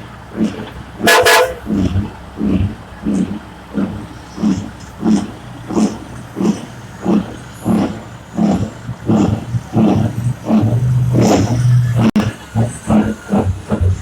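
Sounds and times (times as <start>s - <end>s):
engine revving in bursts: 0.0s - 14.0s.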